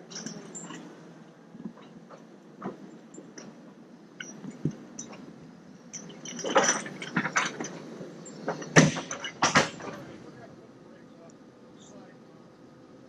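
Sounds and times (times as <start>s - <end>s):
clicks and clattering knocks: 5.9s - 7.8s, 8.4s - 10.2s.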